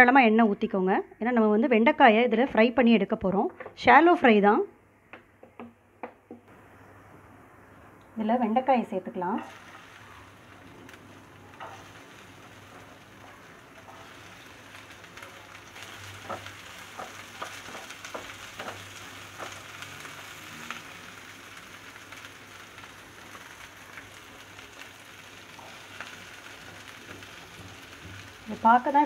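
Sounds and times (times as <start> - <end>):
okra sizzling in oil: 8.2 - 29.0.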